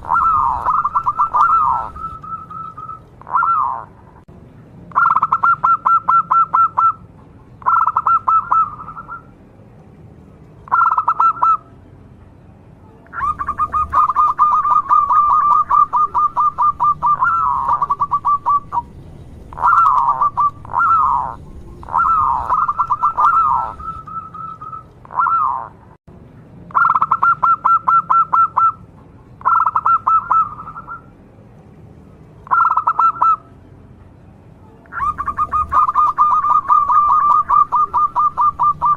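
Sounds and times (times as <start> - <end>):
bird falling calls: 0.0 - 3.8, 19.6 - 25.6
dove staccato cooing: 0.0 - 4.0, 4.9 - 7.0, 7.6 - 9.3, 10.7 - 11.6, 13.1 - 18.9, 19.5 - 25.8, 29.4 - 31.0, 32.4 - 33.4, 34.9 - 38.9.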